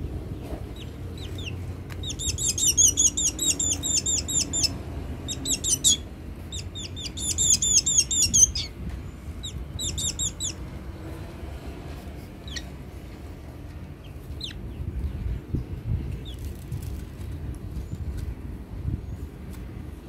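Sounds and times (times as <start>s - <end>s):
bird chirping: 0.4s - 8.8s, 9.4s - 10.6s, 12.4s - 12.7s, 14.0s - 14.9s.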